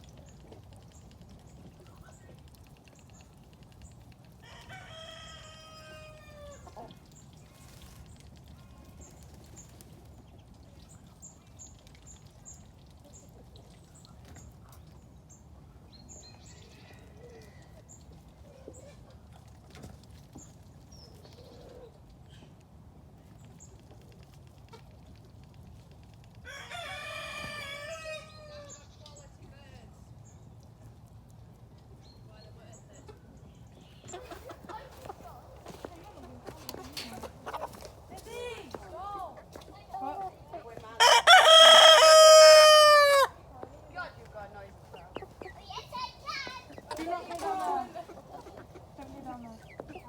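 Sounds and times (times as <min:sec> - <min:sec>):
rooster crowing: 0:04.4 - 0:06.6, 0:26.5 - 0:28.6, 0:41.0 - 0:43.3.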